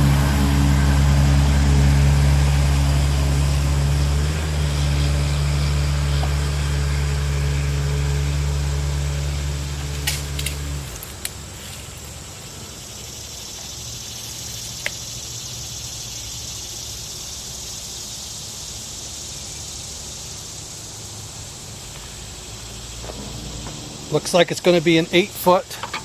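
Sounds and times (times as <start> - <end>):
machine motor humming: 0.0 - 5.1, 22.4 - 26.0
steady high-pitched hiss: 0.0 - 26.0.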